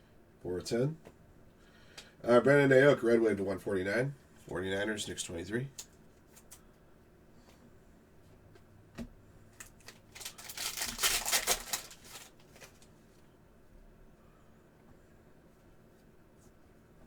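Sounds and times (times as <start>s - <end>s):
card stock rustling: 9.6s - 12.9s
trading cards handled: 9.6s - 12.9s.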